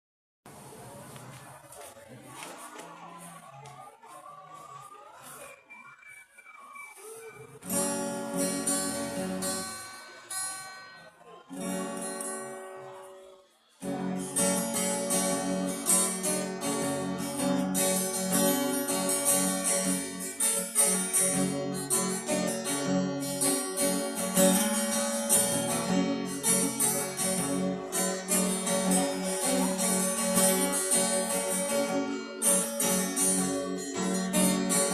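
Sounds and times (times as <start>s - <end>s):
acoustic guitar strumming: 7.6s - 34.9s.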